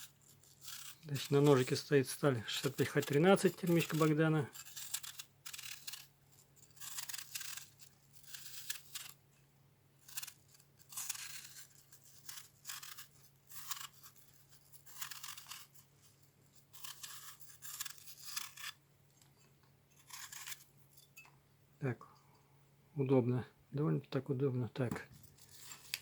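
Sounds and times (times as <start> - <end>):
knife scraping peel off produce: 0.0 - 9.2, 10.0 - 18.8, 19.9 - 21.2
low electrical hum: 0.0 - 26.0.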